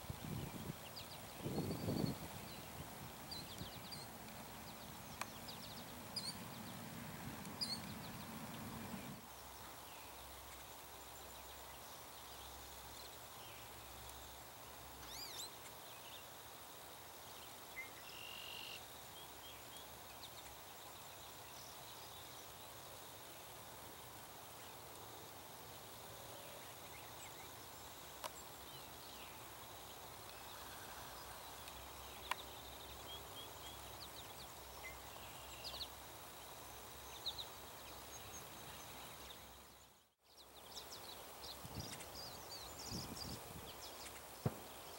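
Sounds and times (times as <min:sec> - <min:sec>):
songbirds chirping and whistling: 0:00.3 - 0:09.2.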